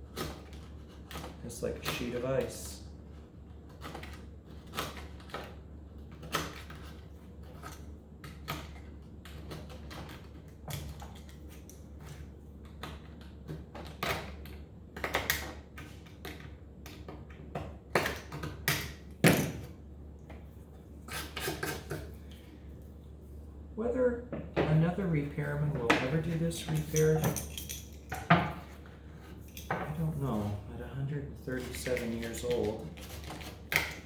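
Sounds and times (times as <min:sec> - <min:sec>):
steady low hum: 0:05.2 - 0:34.0
blade scraping glue off wood: 0:21.1 - 0:22.1.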